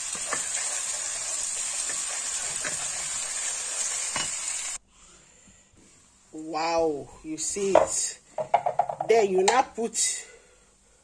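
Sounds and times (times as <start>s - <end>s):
vegetables sizzling in oil: 0.0s - 4.8s.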